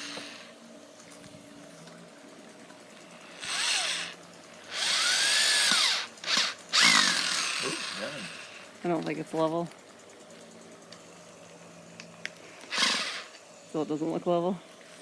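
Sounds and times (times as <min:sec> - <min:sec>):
power drill driving screws into wood: 0:00.0 - 0:00.5, 0:03.4 - 0:08.6, 0:12.7 - 0:13.4.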